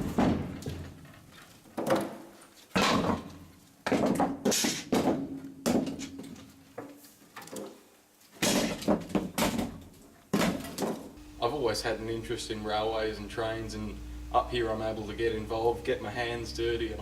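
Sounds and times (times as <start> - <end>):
faint steady hum: 11.2 - 17.0.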